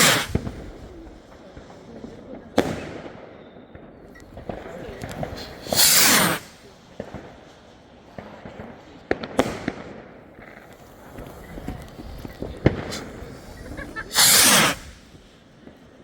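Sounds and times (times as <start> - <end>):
fireworks rushing burst: 0.0 - 1.5, 4.3 - 7.4, 9.2 - 15.9
fireworks bangs and cracks: 0.0 - 16.0.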